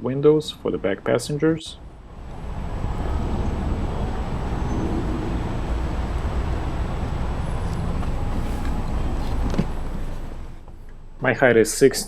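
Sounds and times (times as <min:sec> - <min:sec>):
low vehicle rumble: 0:01.7 - 0:11.2.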